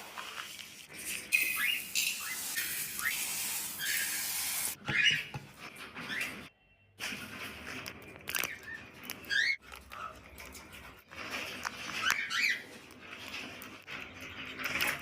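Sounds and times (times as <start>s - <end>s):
cockatiels chirping: 8.4s - 10.2s, 11.9s - 12.7s.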